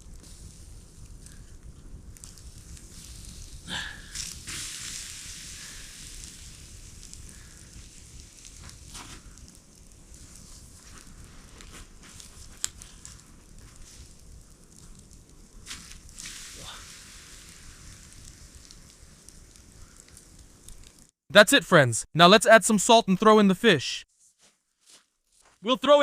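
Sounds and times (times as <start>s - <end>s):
sharp fire pop: 0.0s - 14.1s, 15.6s - 21.1s
campfire hissing: 0.0s - 21.2s
fire crackling: 0.0s - 21.5s.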